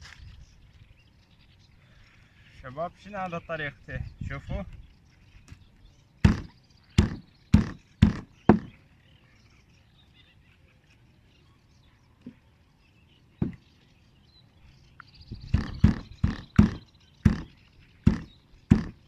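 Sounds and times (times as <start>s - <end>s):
sharp knocks: 6.2s - 8.8s, 13.4s - 13.6s, 15.5s - 19.0s.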